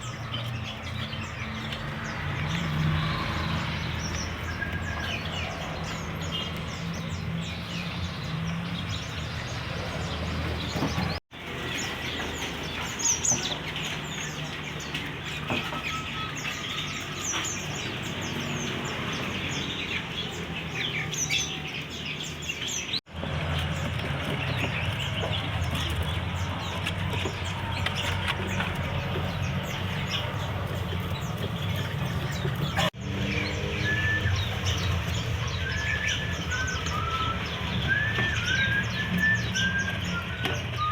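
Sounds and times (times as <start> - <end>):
songbirds chirping: 0.0 - 40.9
whistled bird notes: 33.5 - 40.9.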